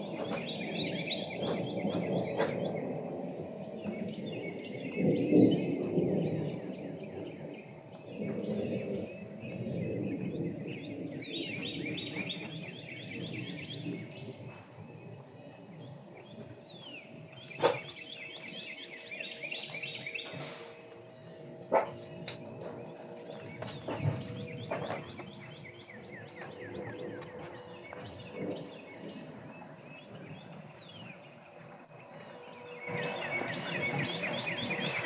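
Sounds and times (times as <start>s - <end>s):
birds whistling and chirping: 0.0s - 35.0s
low rumbling creaking noise: 19.6s - 30.7s.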